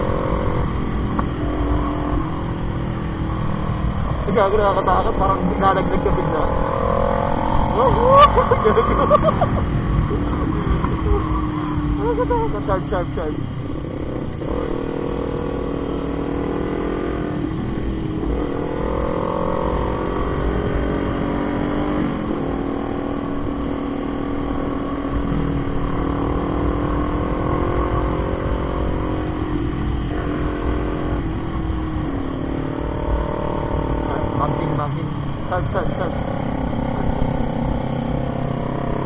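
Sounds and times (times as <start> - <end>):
motorcycle engine accelerating: 0.0 - 39.0
wind noise: 0.0 - 39.0.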